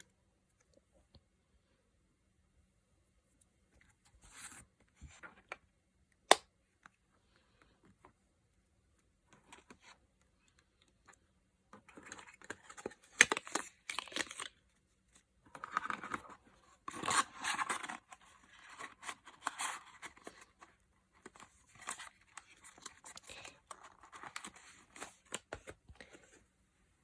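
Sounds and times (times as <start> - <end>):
packaging crinkling and tearing: 12.0 - 14.6.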